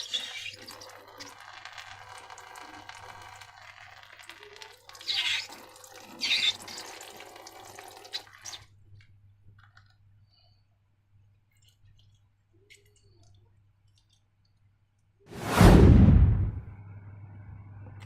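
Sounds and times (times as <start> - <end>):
liquid pouring and dripping: 0.0 - 10.0.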